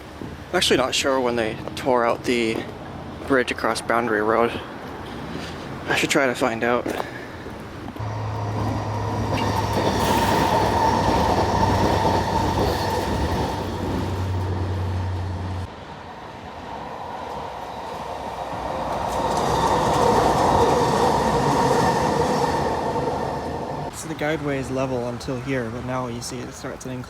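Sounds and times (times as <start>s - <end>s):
low hum: 7.9s - 15.7s
train passing with whine: 8.0s - 24.2s.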